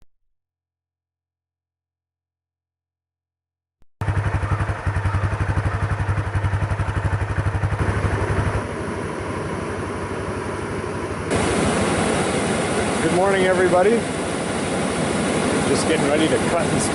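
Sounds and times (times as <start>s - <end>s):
engine idling: 4.0s - 16.9s
loud rushing noise: 7.8s - 16.9s.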